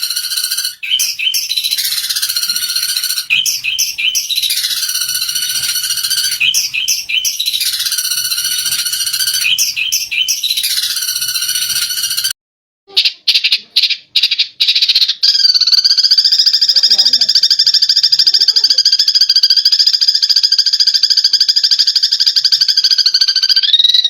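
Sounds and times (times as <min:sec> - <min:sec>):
sparrows chirping and chattering: 0:00.0 - 0:12.3, 0:16.0 - 0:19.1.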